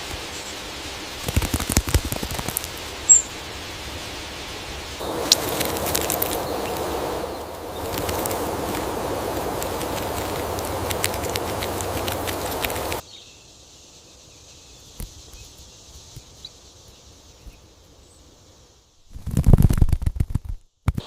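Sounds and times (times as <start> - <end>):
faint high hiss: 0.0 - 19.8
crackly rustling with clicks: 1.1 - 7.0, 7.6 - 13.0, 19.1 - 21.0.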